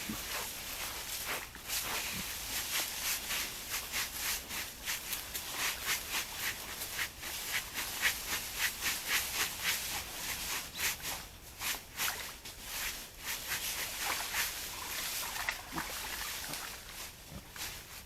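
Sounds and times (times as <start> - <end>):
boar rustling through ground litter: 0.0 - 18.0.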